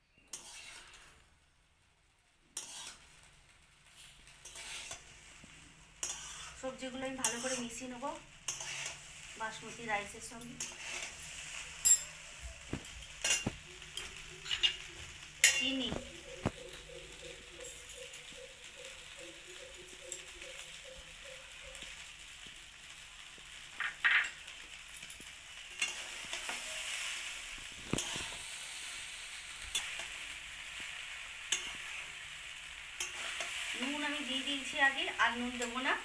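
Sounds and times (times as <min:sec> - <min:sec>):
rice sizzling in a pan: 0:00.0 - 0:36.0
spatula scraping and knocking pan: 0:00.2 - 0:01.2, 0:02.6 - 0:03.3, 0:03.9 - 0:09.1, 0:10.4 - 0:16.9, 0:27.8 - 0:28.5.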